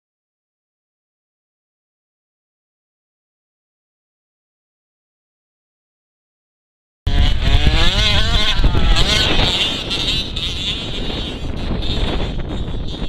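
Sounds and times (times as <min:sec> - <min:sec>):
small two-stroke engine revving: 0:07.1 - 0:13.0.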